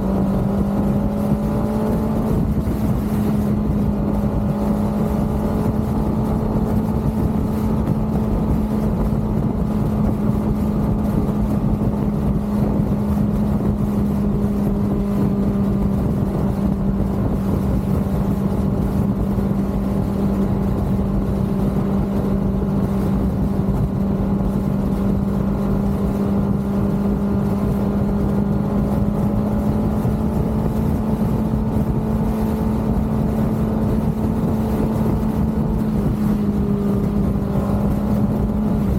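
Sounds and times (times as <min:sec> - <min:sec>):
motorcycle engine cruising: 0:00.0 - 0:38.9
wind and road noise: 0:00.0 - 0:38.9.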